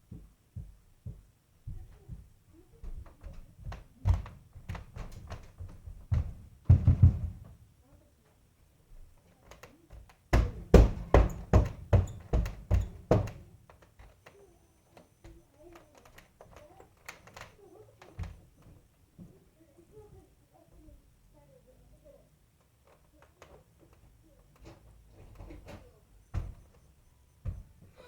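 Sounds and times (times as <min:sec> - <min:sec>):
heavy running footsteps on floor: 0:00.0 - 0:07.6, 0:10.4 - 0:13.5, 0:27.4 - 0:28.0.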